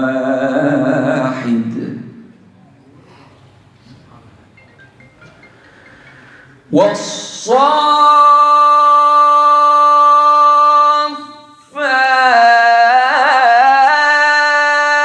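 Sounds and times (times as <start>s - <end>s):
man reciting in melodic chant: 0.0s - 2.3s, 6.7s - 15.0s.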